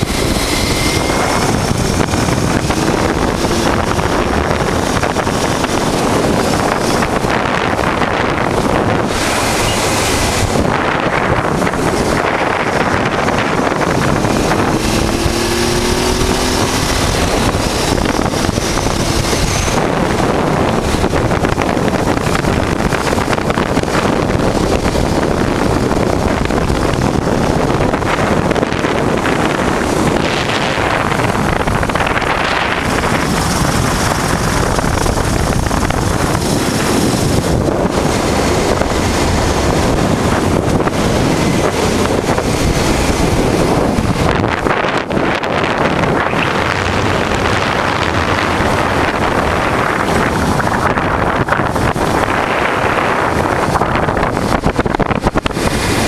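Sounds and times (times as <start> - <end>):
motorcycle engine running: 0.0 - 56.0
wind rush over microphone: 0.0 - 56.0.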